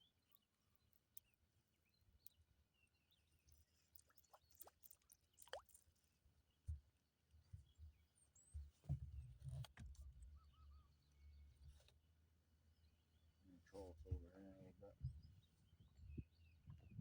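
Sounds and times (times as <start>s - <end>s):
faint low thumps and knocks: 6.6s - 10.3s, 13.8s - 17.0s.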